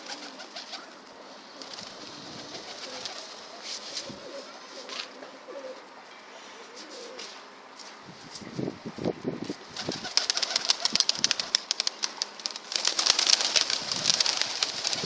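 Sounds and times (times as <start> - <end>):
pigeons cooing: 0.0 - 6.0.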